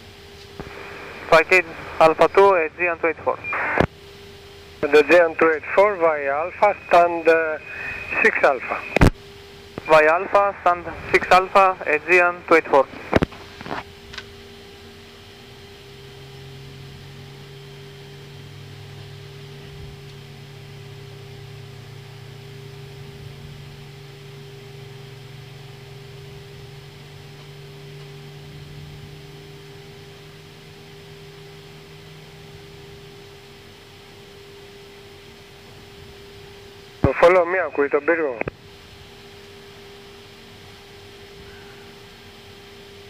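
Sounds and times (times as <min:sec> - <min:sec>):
cockpit engine hum: 0:00.0 - 0:43.0
constant fan tone: 0:00.0 - 0:43.0
low drone: 0:04.8 - 0:09.0.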